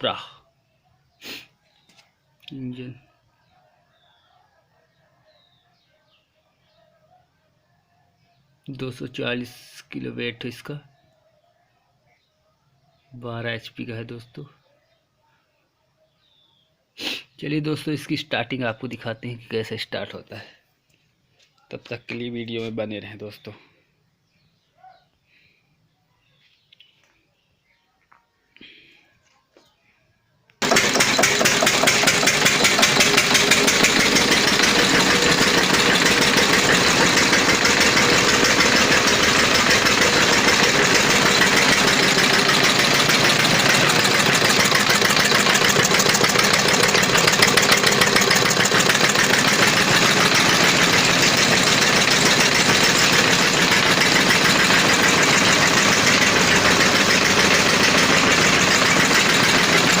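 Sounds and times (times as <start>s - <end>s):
diesel engine running: 30.6s - 60.0s.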